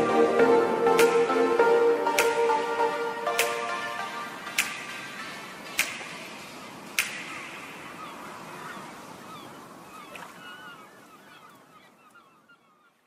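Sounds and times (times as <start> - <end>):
birds calling: 4.4 - 13.0
sharp click: 7.0 - 7.4.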